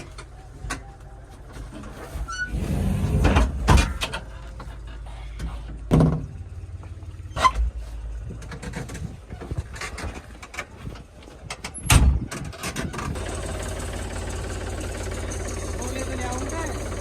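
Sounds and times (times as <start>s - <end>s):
vehicle engine humming: 3.3s - 11.5s, 13.0s - 17.0s.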